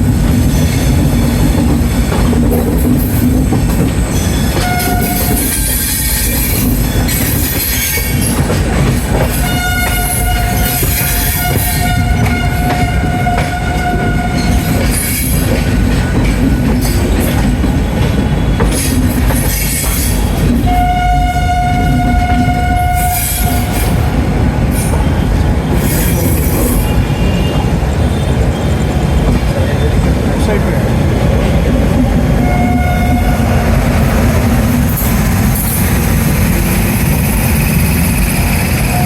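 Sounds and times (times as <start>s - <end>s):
train rumbling through station: 0.0s - 39.0s
train horn: 4.6s - 6.4s, 9.3s - 15.0s, 20.6s - 24.0s, 32.4s - 33.8s, 38.8s - 39.0s.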